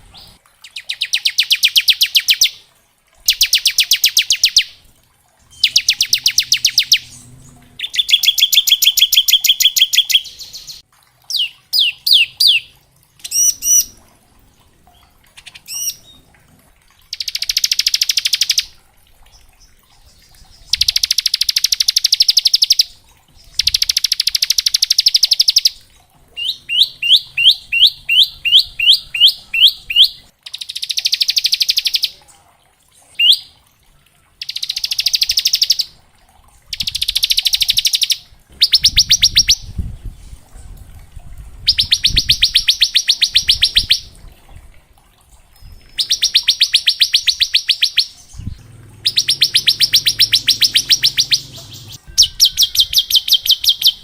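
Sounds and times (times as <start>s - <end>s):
bird rapid rattling trill: 46.0s - 54.0s.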